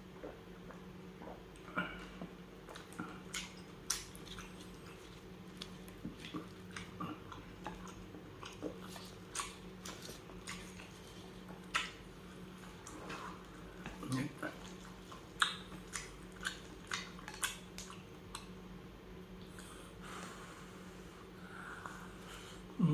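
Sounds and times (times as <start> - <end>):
faint steady hum: 0.0 - 22.9
person chewing and biting: 2.7 - 18.5.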